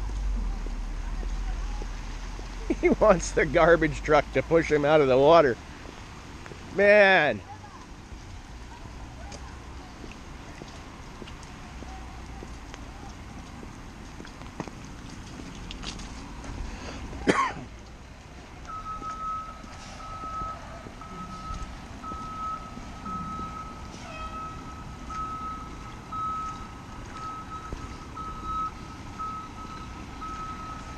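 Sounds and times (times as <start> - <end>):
truck rumble: 0.0 - 30.9
truck reversing alarm beeping: 18.6 - 30.9.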